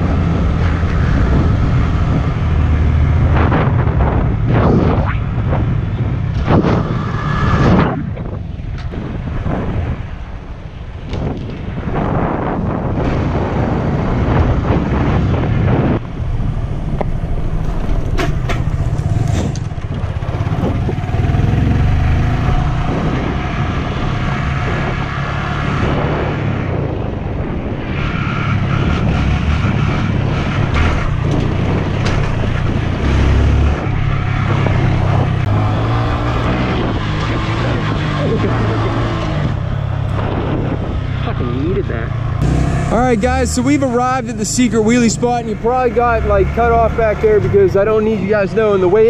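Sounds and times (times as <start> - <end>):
minibike engine revving: 17.2 - 26.3, 28.3 - 47.8.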